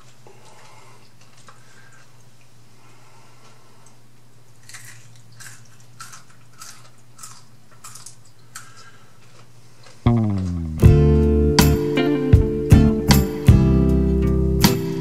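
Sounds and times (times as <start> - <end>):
crunchy chewing: 3.4 - 10.8
low hum: 10.1 - 14.7
acoustic guitar music: 10.1 - 15.0.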